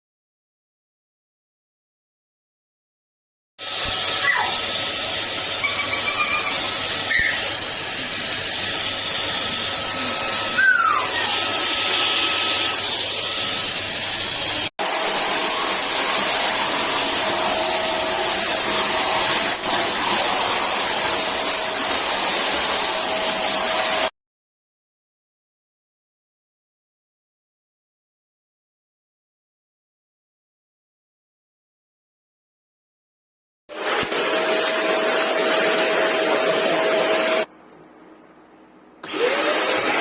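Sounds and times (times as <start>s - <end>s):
vacuum cleaner running: 3.6s - 24.1s, 33.7s - 37.5s, 39.0s - 40.0s.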